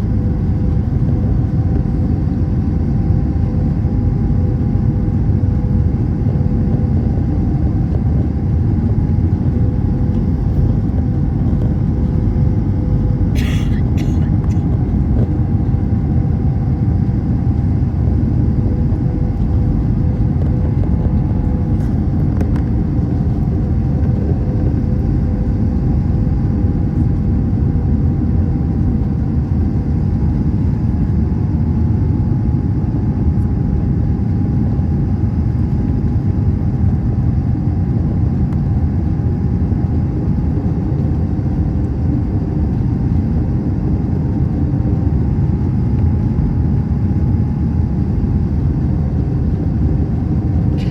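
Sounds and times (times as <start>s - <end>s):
faint steady hum: 0.0s - 33.6s
airplane engines rumbling: 0.0s - 50.9s.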